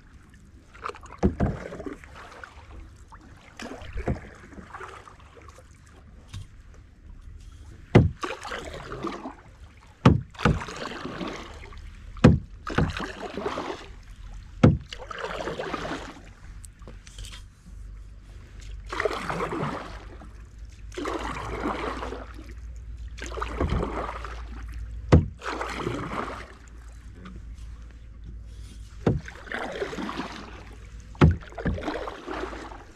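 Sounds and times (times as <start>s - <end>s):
paddle swishing and splashing: 0.0s - 32.9s
paddle knocking on canoe: 0.9s - 1.9s, 3.6s - 4.8s, 7.9s - 8.5s, 10.0s - 11.4s, 12.2s - 13.8s, 14.5s - 16.1s, 25.0s - 26.5s, 29.0s - 32.9s.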